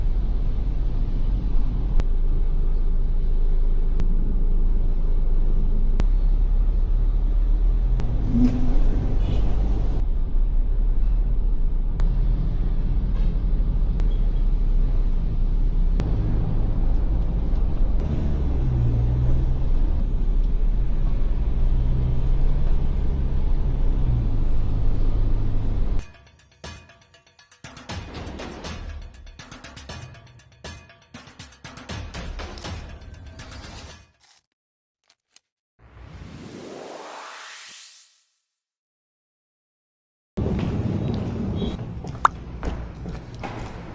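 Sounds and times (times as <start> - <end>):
car engine and road rumble: 0.0 - 26.1.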